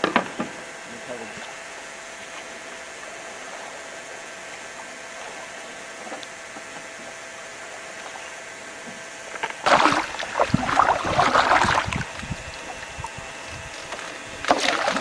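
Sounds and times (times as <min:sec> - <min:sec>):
loud splashing and knocking: 0:09.6 - 0:12.0, 0:14.4 - 0:15.0.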